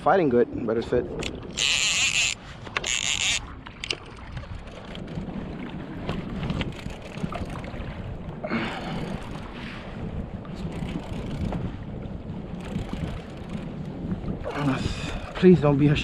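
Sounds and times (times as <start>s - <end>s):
wind and water noise: 0.0s - 16.0s
fishing reel drag buzzing: 1.2s - 3.5s, 12.6s - 13.7s.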